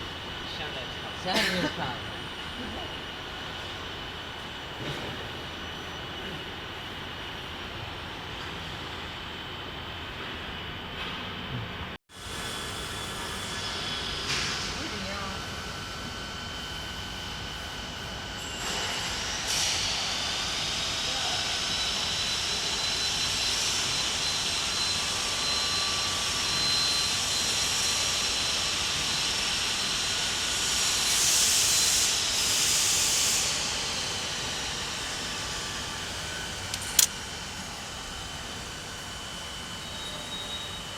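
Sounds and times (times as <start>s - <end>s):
laser cutter hissing and whining: 12.2s - 40.9s
sharp click: 36.7s - 37.2s.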